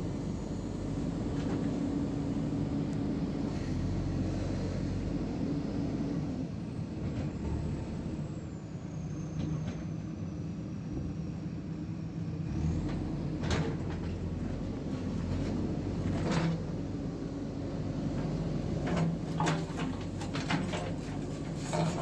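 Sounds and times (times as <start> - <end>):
diesel engine running: 0.0 - 6.8.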